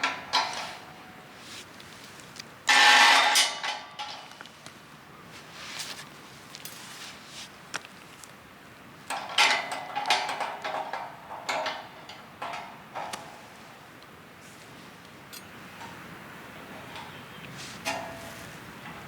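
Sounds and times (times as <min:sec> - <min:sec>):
metal camp gear clinking: 0:15.3 - 0:16.0.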